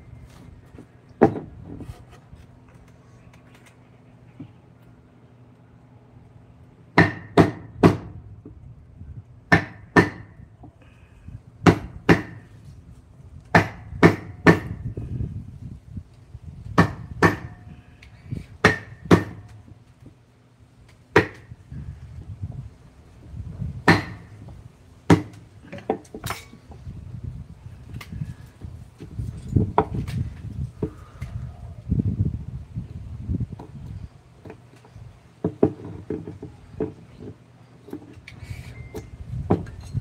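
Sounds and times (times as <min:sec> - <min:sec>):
chisel striking wood: 0:07.0 - 0:08.0, 0:23.9 - 0:24.2.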